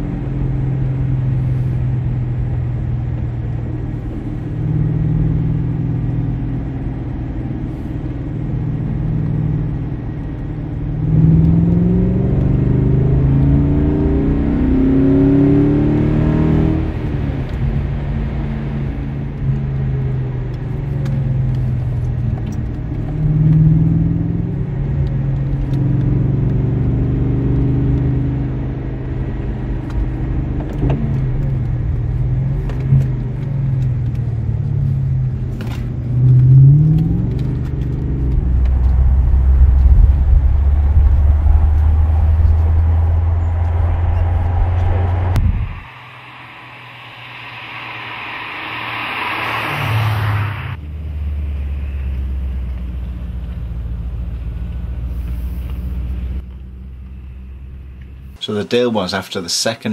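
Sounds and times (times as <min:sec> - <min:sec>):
car engine revving: 0:00.0 - 0:58.4.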